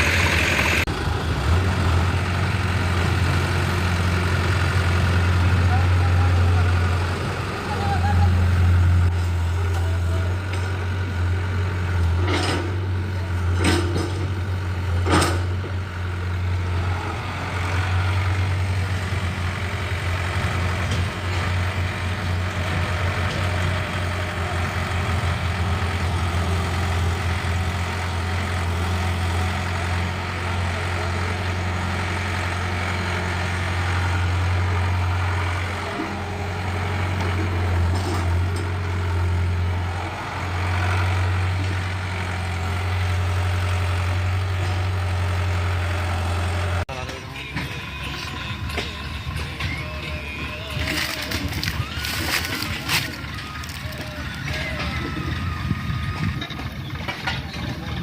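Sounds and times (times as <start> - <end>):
tractor diesel engine humming: 0.0 - 58.0.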